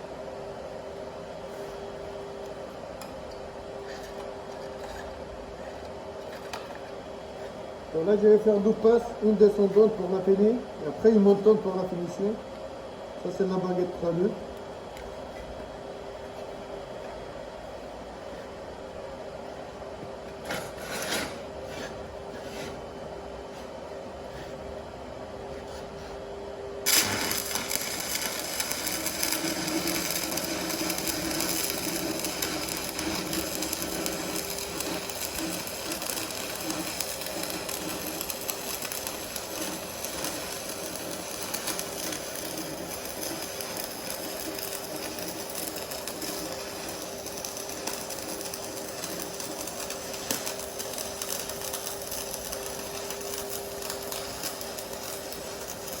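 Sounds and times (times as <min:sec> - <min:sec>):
welding arc crackling: 0:26.8 - 0:56.0.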